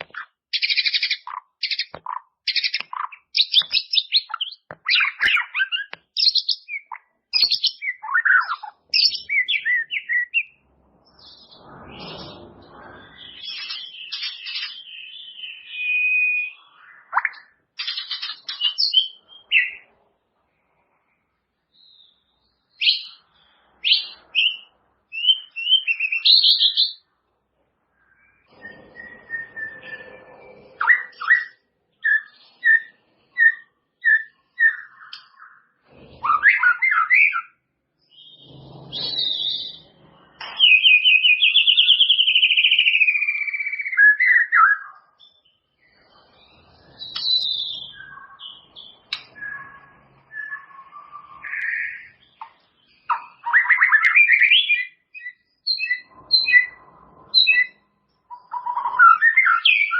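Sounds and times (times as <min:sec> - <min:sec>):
bird singing whistled phrases: 0:00.1 - 0:10.6, 0:13.0 - 0:19.8, 0:23.8 - 0:27.0, 0:28.0 - 0:35.6, 0:36.2 - 0:37.6, 0:40.4 - 0:45.4, 0:46.8 - 0:52.2, 0:53.0 - 0:59.9.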